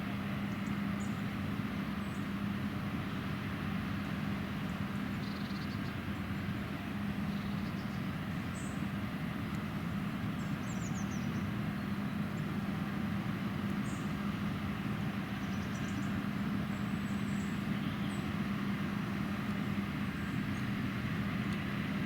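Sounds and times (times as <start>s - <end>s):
combine harvester drone: 0.0s - 22.0s.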